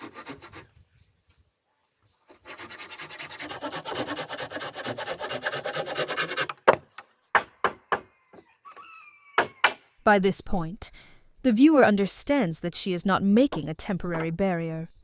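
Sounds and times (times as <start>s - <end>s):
hand tool scraping wood: 0.0s - 0.8s, 2.3s - 8.0s
wood knocks: 6.4s - 8.8s.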